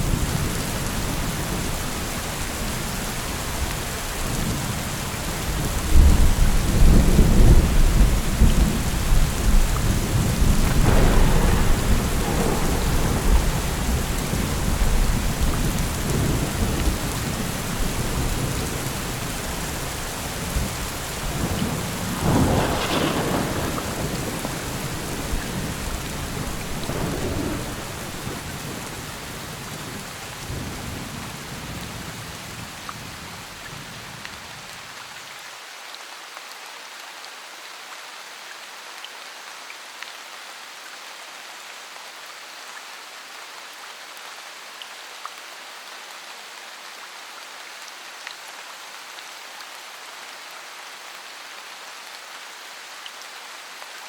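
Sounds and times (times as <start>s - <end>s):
steady rain: 0.0s - 54.0s
rolling thunder: 5.9s - 32.2s
sharp thunderclap: 9.6s - 16.8s, 20.6s - 29.6s.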